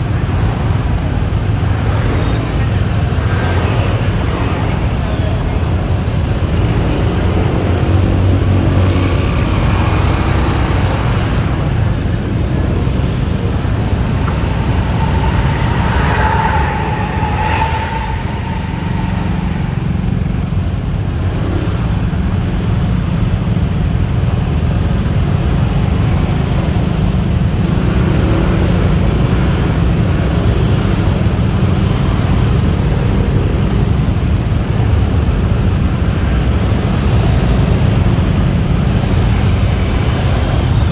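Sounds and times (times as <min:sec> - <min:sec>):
scooter engine and road noise: 0:00.0 - 0:40.9
traffic: 0:00.0 - 0:40.9
wind rumble on microphone: 0:00.0 - 0:40.9
short wavering tone: 0:12.5 - 0:21.1.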